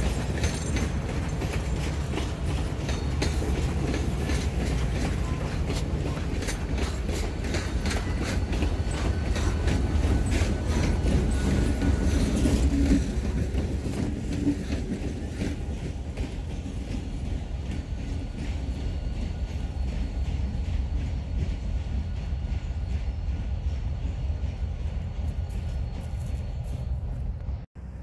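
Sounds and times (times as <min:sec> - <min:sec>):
wheels clicking over rail joints: 0:00.0 - 0:21.6
diesel locomotives rumbling: 0:00.0 - 0:28.0.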